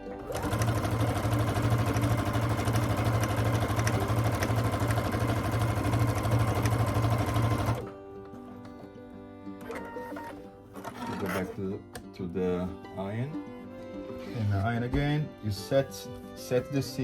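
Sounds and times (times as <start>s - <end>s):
electric sewing machine running: 0.0s - 7.9s, 9.7s - 11.5s.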